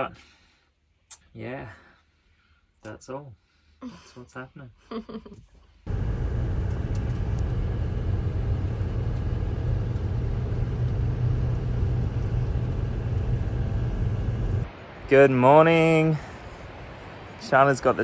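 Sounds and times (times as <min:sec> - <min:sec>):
vehicle road rumble: 0:05.9 - 0:14.7.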